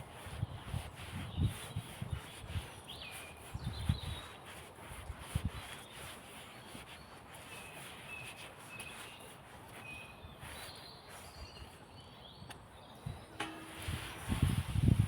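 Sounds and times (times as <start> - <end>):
steady background hiss: 13.2 - 14.5.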